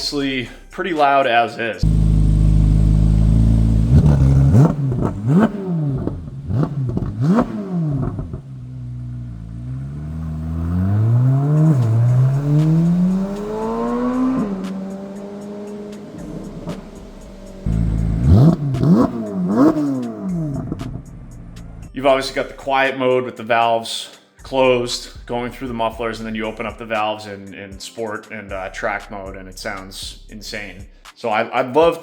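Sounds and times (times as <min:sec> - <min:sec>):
loud car engine revving: 0:01.8 - 0:21.9.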